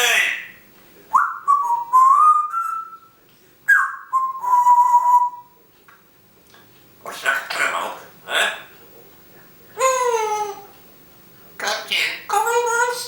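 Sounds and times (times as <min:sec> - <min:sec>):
parrot whistling: 0:01.1 - 0:03.1, 0:03.7 - 0:05.6.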